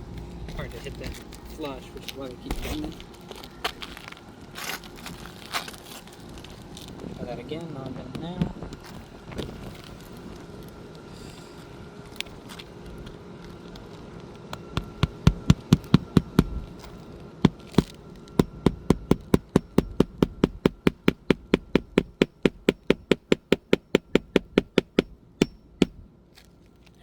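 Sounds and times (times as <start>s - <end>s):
hammer driving roofing nails: 14.5s - 26.1s.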